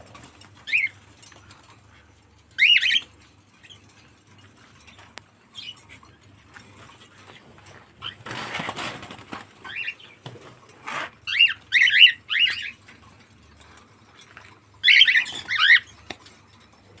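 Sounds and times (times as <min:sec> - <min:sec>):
cockatiel chirping: 0:00.6 - 0:01.0, 0:02.6 - 0:03.8, 0:09.6 - 0:10.2, 0:11.2 - 0:12.8, 0:14.8 - 0:16.1.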